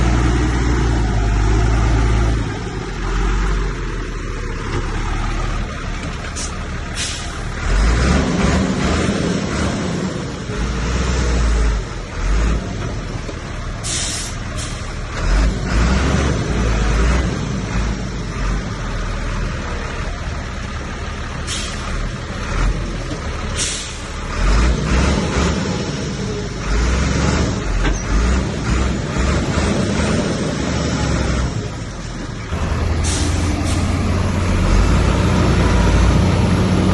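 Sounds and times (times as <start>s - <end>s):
diesel machinery engine rumble: 0.0s - 36.9s
short sharp hisses: 6.4s - 7.4s, 13.8s - 14.9s, 21.5s - 21.8s, 23.6s - 24.1s, 33.0s - 33.9s.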